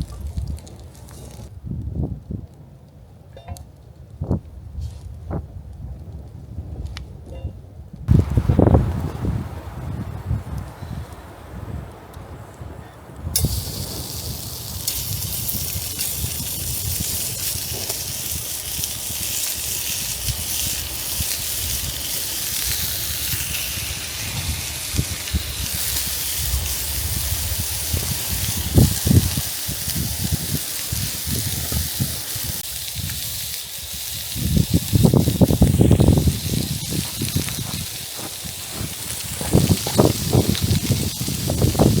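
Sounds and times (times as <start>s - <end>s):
wind rumble on microphone: 0.0s - 42.0s
food sizzling in a pan: 13.4s - 42.0s.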